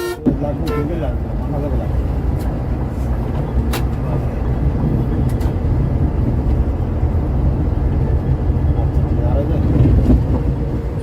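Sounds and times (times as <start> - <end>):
coach engine rumble: 0.0 - 11.0.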